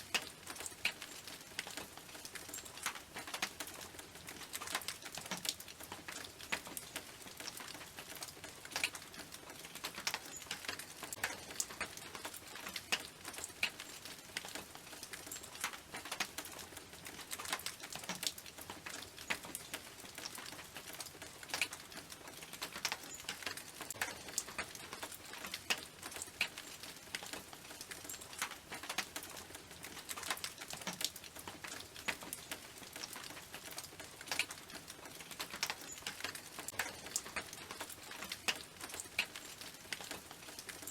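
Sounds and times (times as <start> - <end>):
hiss of falling rain: 0.0 - 40.9
raindrops ticking on metal roof: 0.0 - 40.9.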